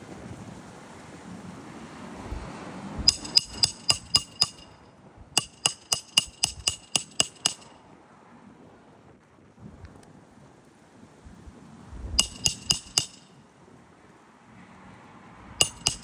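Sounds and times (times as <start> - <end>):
hammer striking metal: 3.1 - 4.8, 5.4 - 7.8, 12.2 - 13.3, 15.6 - 16.0.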